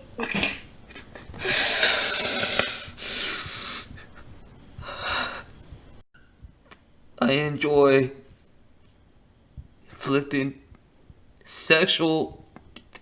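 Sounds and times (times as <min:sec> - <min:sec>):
man breathing heavily: 0:01.4 - 0:04.2, 0:04.8 - 0:05.7.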